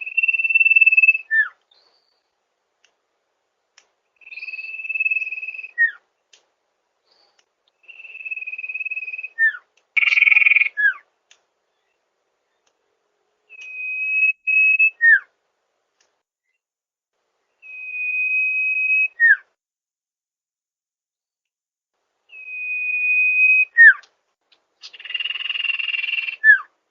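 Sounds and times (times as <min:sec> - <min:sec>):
high whistle bird call: 0:00.0 - 0:01.6, 0:04.2 - 0:06.0, 0:07.8 - 0:11.0, 0:13.5 - 0:15.3, 0:17.6 - 0:19.5, 0:22.3 - 0:24.0, 0:24.8 - 0:26.7.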